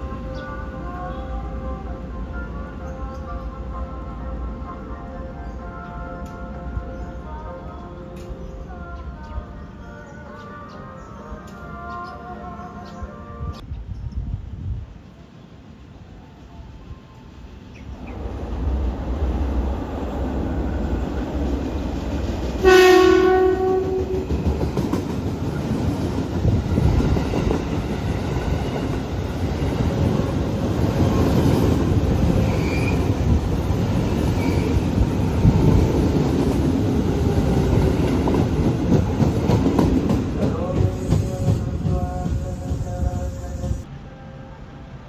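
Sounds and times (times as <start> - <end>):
train rumble and wheel clatter: 0.0 - 45.0
train horn blast: 22.5 - 24.6.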